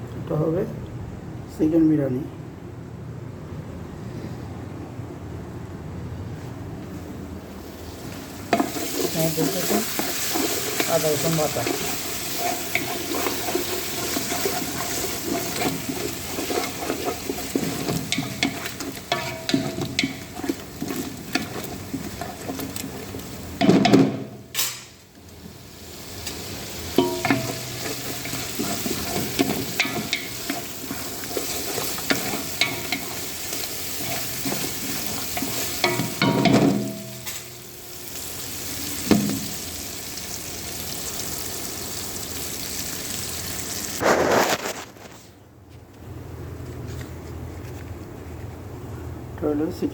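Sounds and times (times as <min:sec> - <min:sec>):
wet stirring and squelching: 0:08.0 - 0:23.8, 0:25.3 - 0:39.8.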